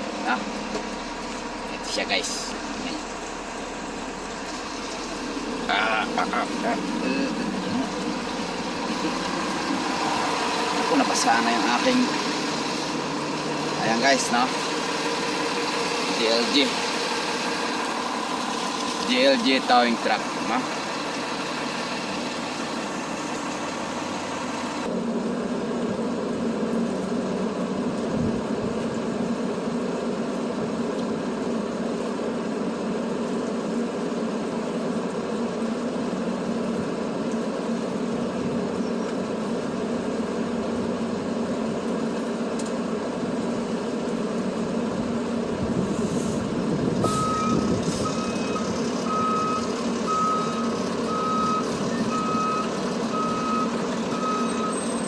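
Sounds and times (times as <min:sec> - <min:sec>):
heavy truck engine running: 0:00.0 - 0:55.0
reversing alarm beeping: 0:47.0 - 0:55.0.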